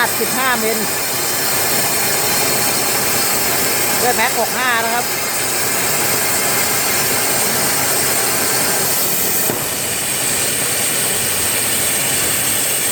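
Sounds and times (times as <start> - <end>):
plasma torch hissing: 0.0 - 12.9.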